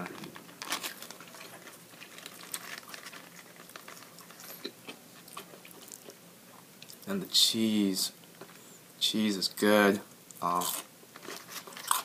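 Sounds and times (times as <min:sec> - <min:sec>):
foil wrapper crinkling: 0:00.0 - 0:04.6, 0:11.1 - 0:12.0
person chewing: 0:00.6 - 0:07.1, 0:10.3 - 0:12.0.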